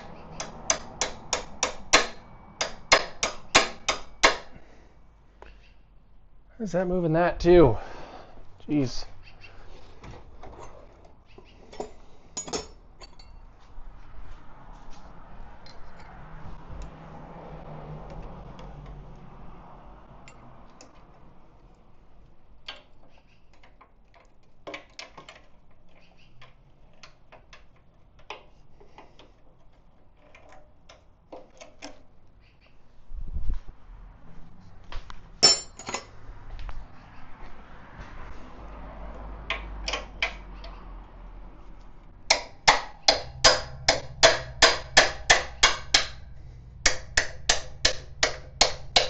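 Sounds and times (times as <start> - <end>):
metal hand tools clinking: 11.7 - 13.4, 35.4 - 36.1.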